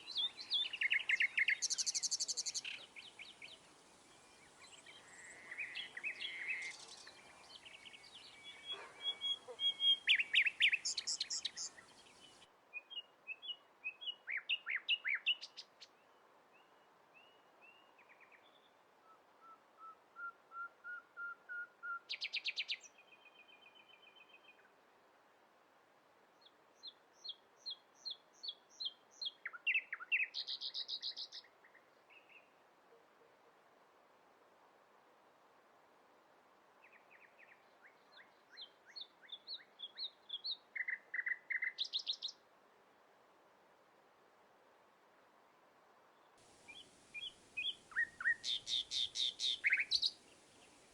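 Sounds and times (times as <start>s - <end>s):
songbirds chirping and trilling: 0.0s - 15.7s, 46.6s - 50.9s.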